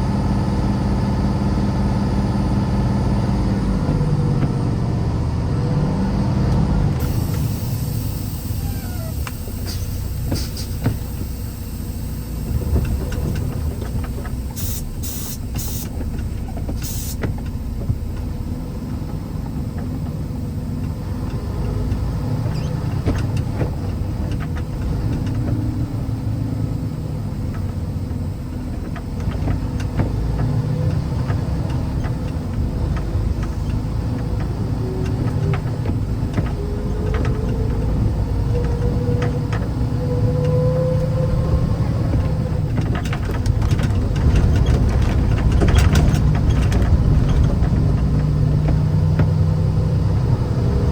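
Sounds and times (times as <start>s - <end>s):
vehicle engine and road rumble: 0.0s - 50.9s.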